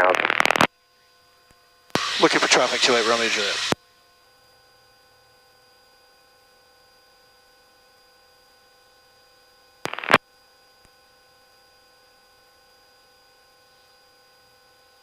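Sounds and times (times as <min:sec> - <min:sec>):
radio hum: 0:00.0 - 0:00.7, 0:02.0 - 0:03.8, 0:09.9 - 0:10.2
radio static burst: 0:00.0 - 0:00.7, 0:02.0 - 0:03.8, 0:09.9 - 0:10.2
steady electrical tones: 0:00.0 - 0:00.7, 0:02.0 - 0:03.8, 0:09.9 - 0:10.2.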